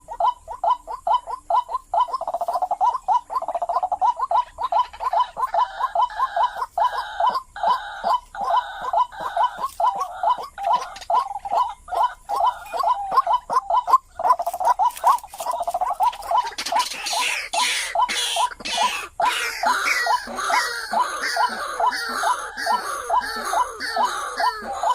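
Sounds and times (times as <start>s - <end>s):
bird croaking call: 0.0s - 24.9s.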